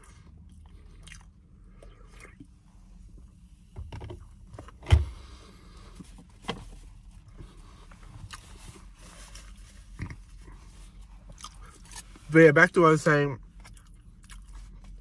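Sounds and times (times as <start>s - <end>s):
person chewing food: 0.0s - 2.5s, 8.2s - 8.6s, 11.2s - 12.1s, 13.6s - 15.0s.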